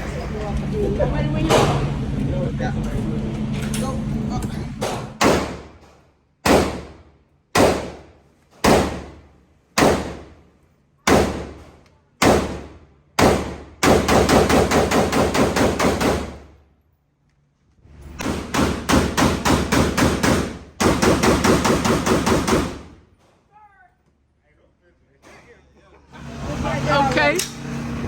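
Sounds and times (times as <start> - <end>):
gunshots: 4.8 - 5.8, 6.4 - 9.2, 9.8 - 10.4, 11.1 - 16.5, 18.2 - 23.0
rapid gunfire: 4.8 - 5.8, 6.4 - 7.0, 7.6 - 9.2, 9.8 - 10.4, 11.1 - 16.5, 18.2 - 23.0.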